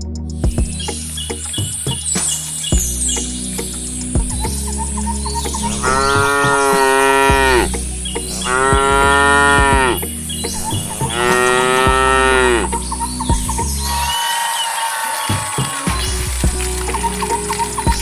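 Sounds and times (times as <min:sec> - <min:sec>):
cow mooing: 0:05.8 - 0:07.7, 0:08.4 - 0:10.0, 0:11.1 - 0:12.7.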